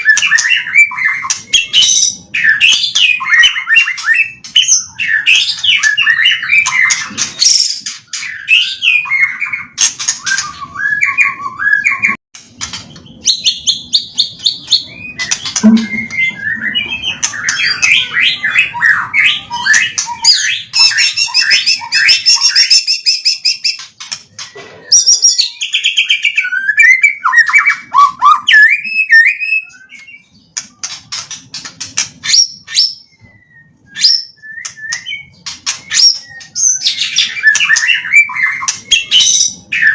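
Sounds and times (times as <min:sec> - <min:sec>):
bird singing whistled phrases: 0:13.3 - 0:23.8, 0:24.9 - 0:30.4, 0:32.2 - 0:39.9.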